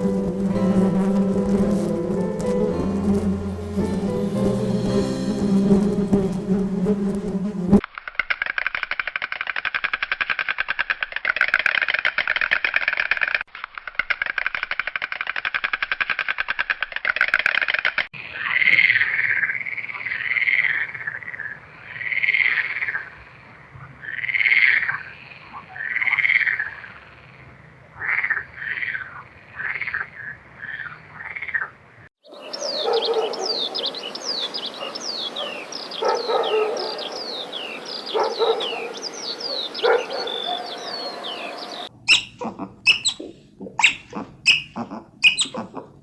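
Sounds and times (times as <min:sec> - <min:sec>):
animal calls: 0:32.3 - 0:46.0
animal pulsing trill: 0:34.8 - 0:45.8.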